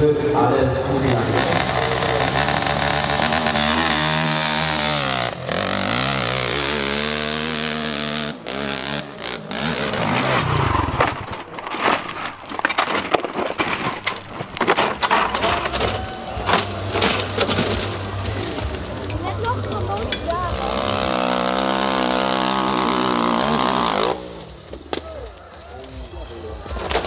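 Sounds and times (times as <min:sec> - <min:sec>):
dirt bike engine revving: 0:00.0 - 0:12.2, 0:13.6 - 0:24.8.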